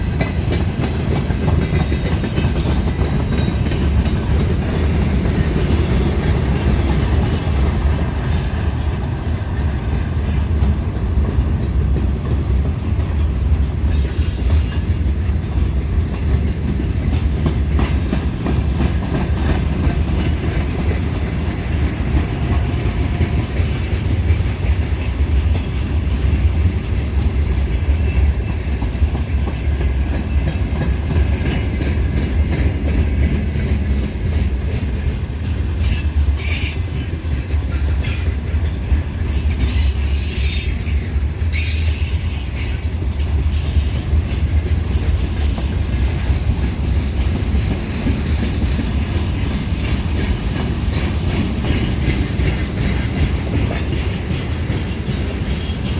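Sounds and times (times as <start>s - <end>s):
train rumbling on rails: 0.0s - 55.9s
high wheel squeal: 39.6s - 44.0s.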